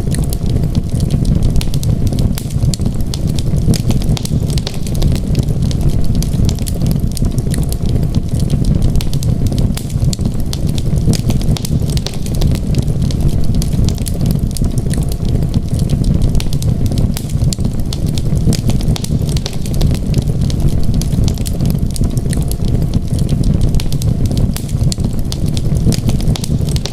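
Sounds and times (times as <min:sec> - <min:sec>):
low rumble of fire: 0:00.0 - 0:26.9
wood fire crackling and popping: 0:00.0 - 0:26.9.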